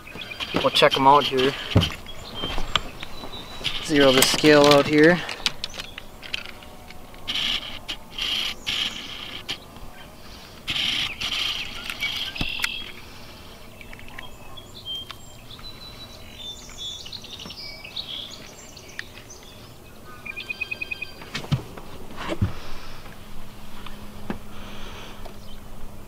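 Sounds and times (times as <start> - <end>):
loud rustling: 0.0 - 9.7
small birds chirping: 0.0 - 25.9
bird trill: 13.7 - 21.3.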